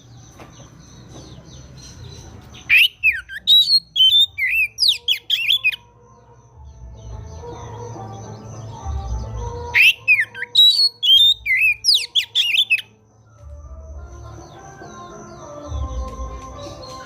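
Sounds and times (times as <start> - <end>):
bird song whistles and squawks: 2.6 - 5.8, 8.6 - 12.9.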